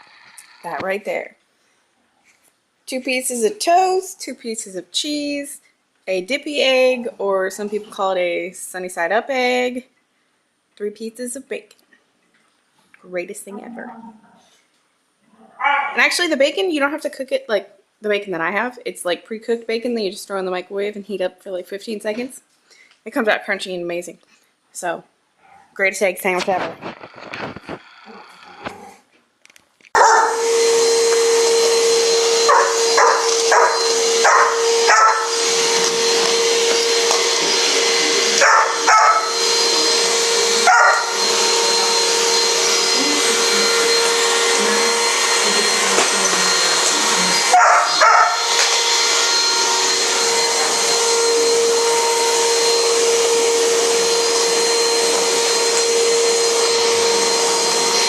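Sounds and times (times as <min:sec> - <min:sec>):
dog barking: 0:15.6 - 0:16.0, 0:30.0 - 0:30.4, 0:32.5 - 0:35.3, 0:38.4 - 0:39.3, 0:40.6 - 0:41.1, 0:47.5 - 0:48.5
vacuum cleaner whine: 0:30.0 - 0:58.0.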